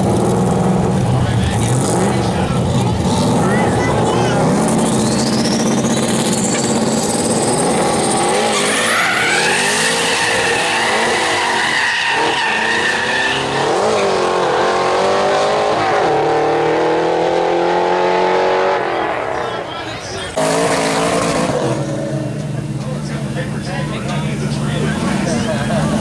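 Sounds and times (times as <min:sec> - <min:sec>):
race car engines accelerating: 0:00.0 - 0:26.0
tires squealing: 0:01.4 - 0:16.8
high whistle: 0:05.0 - 0:06.6.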